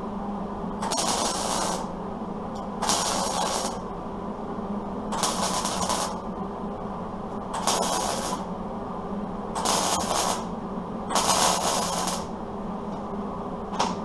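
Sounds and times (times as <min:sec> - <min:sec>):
steady low hum: 0:00.0 - 0:14.0
welder crackling and hissing: 0:00.8 - 0:02.0, 0:02.8 - 0:03.9, 0:05.2 - 0:06.3, 0:07.6 - 0:08.5, 0:09.6 - 0:10.5, 0:11.1 - 0:12.3.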